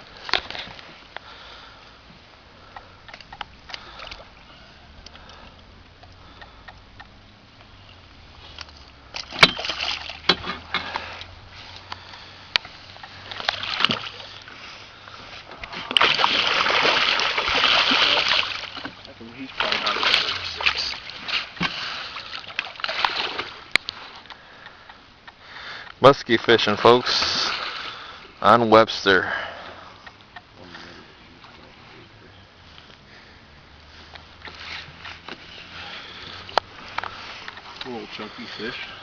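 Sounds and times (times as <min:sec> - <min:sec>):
water splashing against boat: 0:00.0 - 0:07.0, 0:07.6 - 0:24.8, 0:26.0 - 0:30.0.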